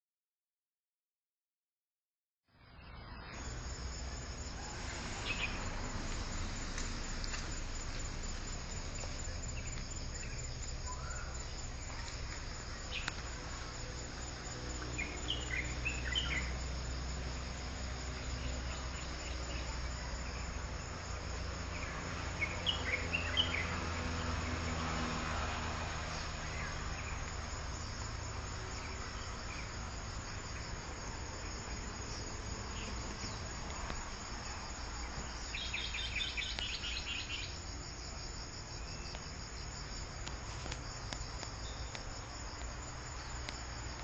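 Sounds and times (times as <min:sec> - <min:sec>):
insects chorus: 0:02.5 - 0:44.0
birds chirping: 0:35.0 - 0:37.6.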